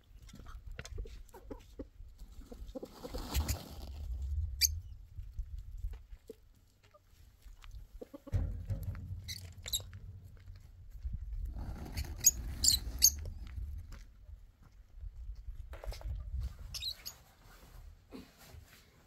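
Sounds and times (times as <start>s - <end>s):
rustling and scuffling: 2.2s - 19.0s
small animal squeaking: 4.6s - 5.0s, 9.2s - 10.2s, 11.8s - 13.3s.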